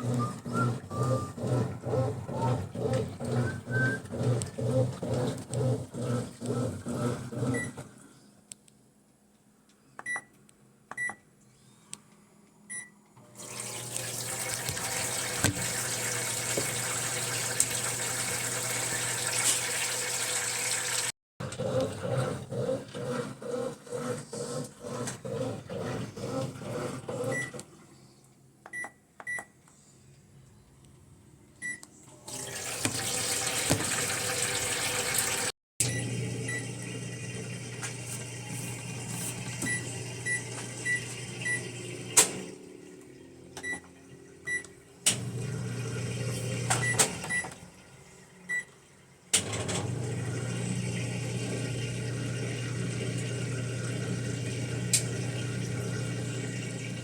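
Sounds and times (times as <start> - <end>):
washing machine beeping: 0.0 - 7.8, 10.0 - 11.3, 12.7 - 21.0, 27.2 - 27.6, 28.7 - 29.6, 31.6 - 57.0
water running into tub: 13.4 - 21.2, 32.2 - 43.4, 45.2 - 49.0, 49.8 - 57.0.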